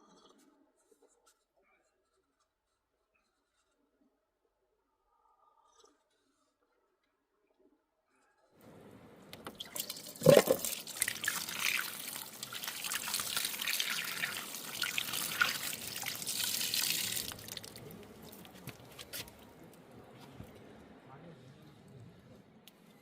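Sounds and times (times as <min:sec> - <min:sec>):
water dripping: 0:09.2 - 0:19.6
water splashing and trickling: 0:09.3 - 0:19.6.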